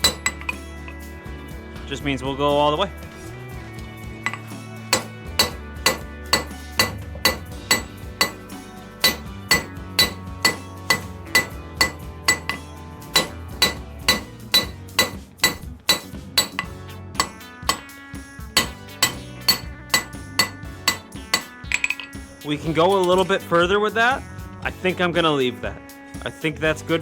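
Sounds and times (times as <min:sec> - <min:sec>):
hammer striking steel on anvil: 0:00.0 - 0:01.0, 0:04.2 - 0:18.0, 0:18.6 - 0:22.2.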